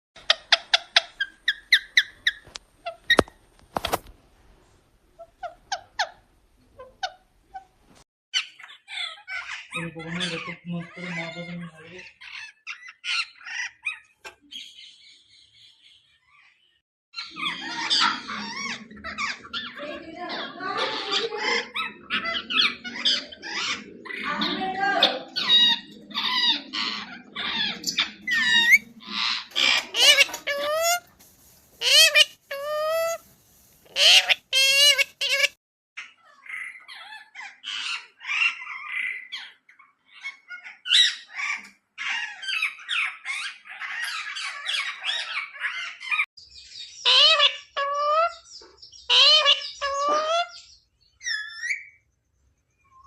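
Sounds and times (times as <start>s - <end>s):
parrot squeaking: 0.3s - 3.2s, 25.0s - 31.1s, 31.8s - 33.3s, 33.9s - 35.6s, 47.0s - 48.4s, 49.1s - 52.0s
parrot squawking and talking: 8.4s - 14.1s, 17.2s - 31.1s, 31.8s - 33.2s, 33.9s - 35.6s, 36.2s - 46.2s, 47.0s - 48.5s, 49.1s - 50.6s.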